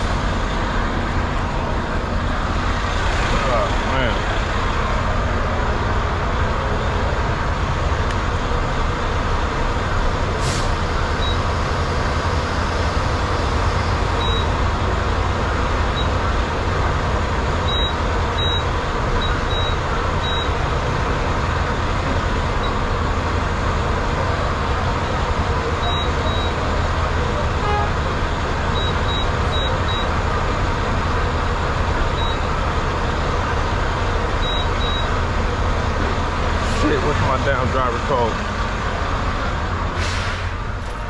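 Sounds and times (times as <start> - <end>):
diesel truck engine idling: 0.0 - 41.0
brief high hiss: 40.0 - 40.6.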